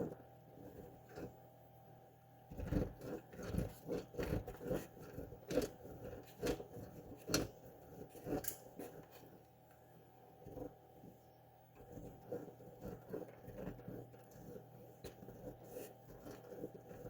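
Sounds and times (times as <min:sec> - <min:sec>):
cheese grater scraping: 0:02.6 - 0:09.2.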